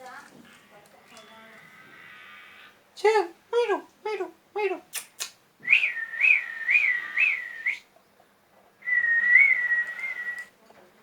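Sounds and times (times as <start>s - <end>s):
person whistling: 5.6s - 7.8s, 8.8s - 10.5s.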